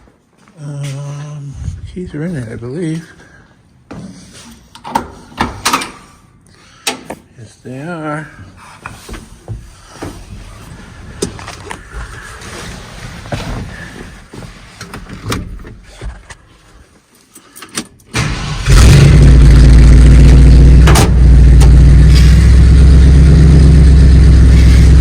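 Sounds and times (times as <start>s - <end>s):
pickup truck engine starting: 18.2s - 25.0s.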